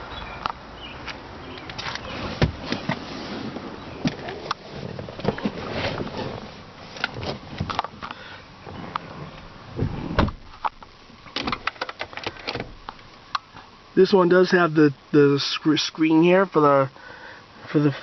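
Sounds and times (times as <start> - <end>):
handling clicks and knocks in car: 4.0 - 8.2, 9.8 - 13.5
heavy thumps: 9.7 - 11.6.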